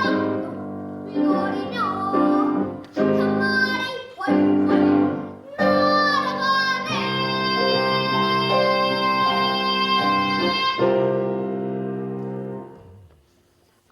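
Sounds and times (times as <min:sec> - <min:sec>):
girl singing: 0:00.0 - 0:11.5
piano accompaniment: 0:00.0 - 0:13.4.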